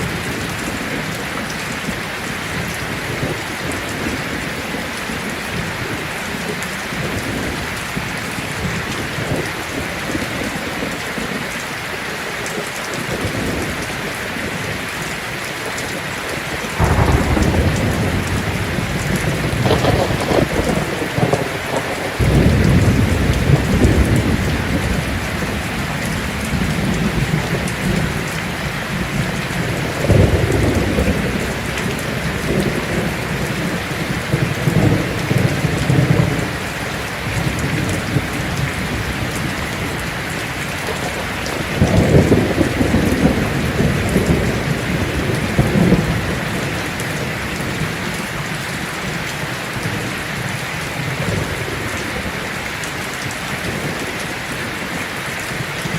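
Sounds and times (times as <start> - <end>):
rain on a tin roof: 0.0 - 55.9
thunder rolling: 16.6 - 40.0, 40.9 - 46.8.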